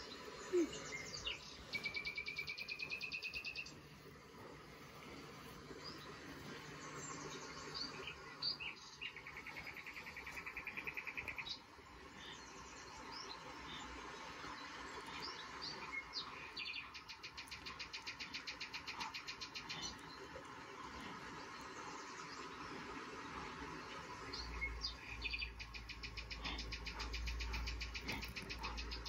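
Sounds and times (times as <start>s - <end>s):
birds chirping: 0.0s - 29.0s
bird trills: 24.3s - 29.0s.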